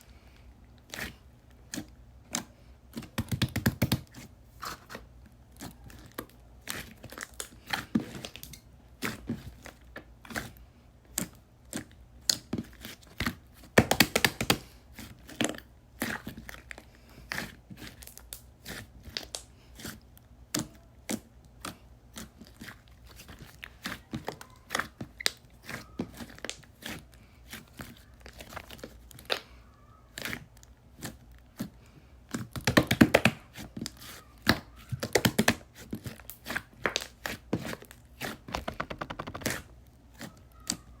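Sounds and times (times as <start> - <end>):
slime clicking and crackling: 32.3 - 40.9.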